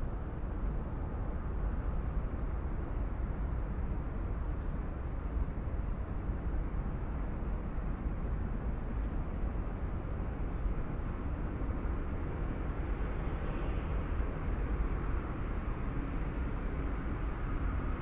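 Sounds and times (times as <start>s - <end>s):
passing traffic noise: 10.2s - 18.0s.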